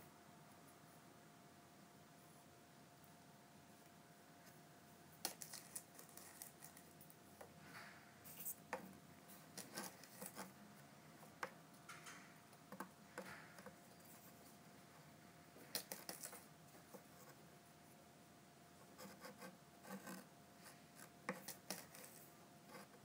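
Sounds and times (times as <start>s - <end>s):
kitten playing clicks and rustles: 3.7s - 17.4s, 18.8s - 23.0s.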